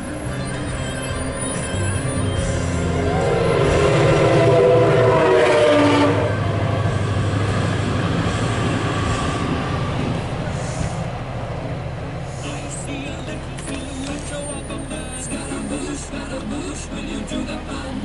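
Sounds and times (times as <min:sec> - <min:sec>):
horn-like tone: 0:00.0 - 0:06.8
train coaches rumbling and clattering: 0:00.0 - 0:18.0.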